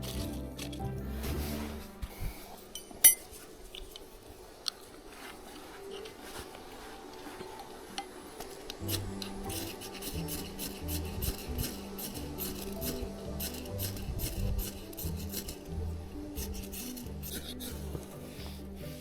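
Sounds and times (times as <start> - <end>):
low background music: 0.0 - 19.0
metal scraping on tinder: 8.6 - 15.7.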